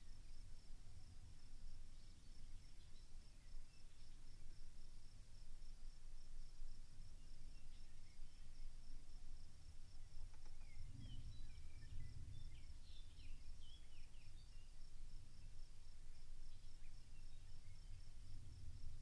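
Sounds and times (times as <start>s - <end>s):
wind rumble on microphone: 8.1s - 19.0s
small bird chirping: 10.1s - 14.8s.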